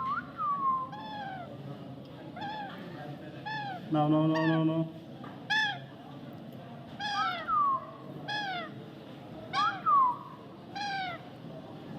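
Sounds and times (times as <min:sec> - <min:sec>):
parrot calling: 0:00.8 - 0:01.5, 0:02.4 - 0:02.8, 0:03.4 - 0:04.7, 0:05.5 - 0:05.8, 0:07.0 - 0:07.6, 0:08.3 - 0:08.8, 0:09.5 - 0:09.9, 0:10.7 - 0:11.2.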